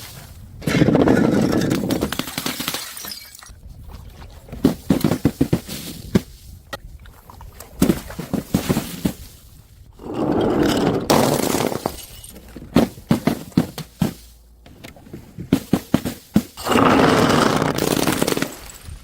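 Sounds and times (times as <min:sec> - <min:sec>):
glass bottle shattering: 0:02.1 - 0:03.6, 0:11.2 - 0:12.4, 0:16.6 - 0:19.0.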